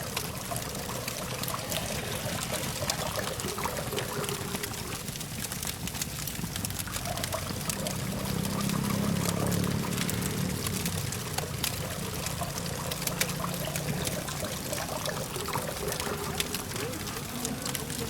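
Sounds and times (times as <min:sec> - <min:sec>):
campfire crackling and popping: 0:00.0 - 0:18.0
distant traffic hum: 0:00.0 - 0:18.0.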